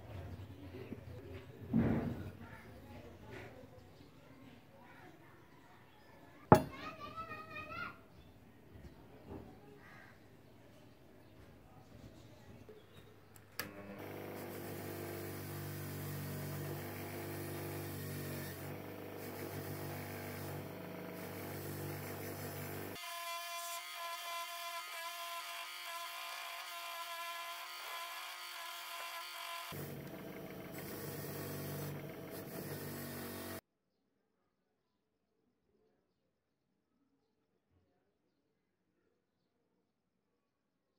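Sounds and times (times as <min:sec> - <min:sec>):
bench grinder motor humming: 0:13.6 - 0:33.6.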